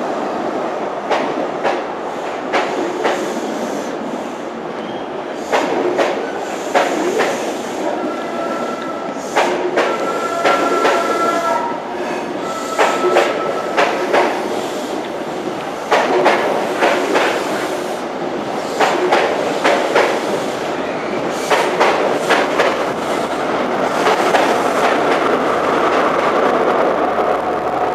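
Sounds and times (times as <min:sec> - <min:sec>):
train rumble: 0:00.0 - 0:27.9
train wheels clicking over rail joints: 0:05.4 - 0:11.2, 0:12.7 - 0:20.6, 0:21.2 - 0:26.3.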